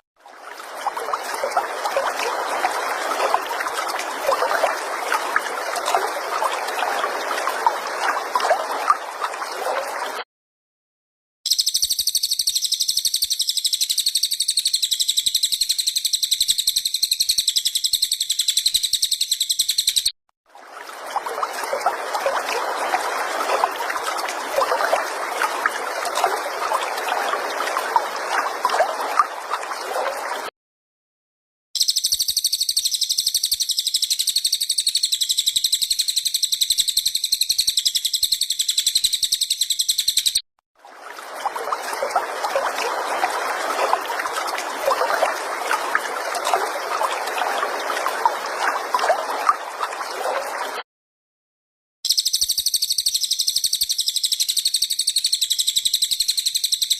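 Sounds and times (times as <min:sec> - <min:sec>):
bird rapid pulsing trill: 0:11.5 - 0:20.1, 0:31.8 - 0:40.4, 0:52.1 - 0:56.9.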